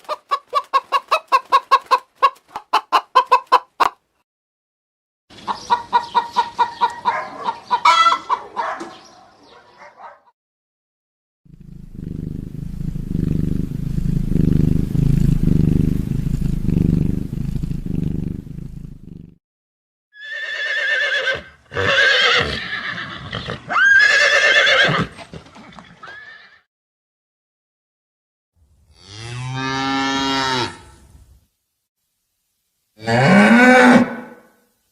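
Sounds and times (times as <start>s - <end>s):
low pulsing rumble: 11.5s - 19.1s
horse whinnying: 20.2s - 25.2s, 25.8s - 26.6s.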